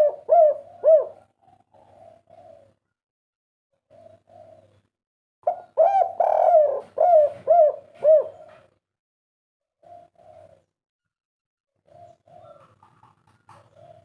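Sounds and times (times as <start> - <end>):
dove cooing: 0.0 - 2.9, 3.8 - 8.8, 9.8 - 10.7, 11.8 - 14.0.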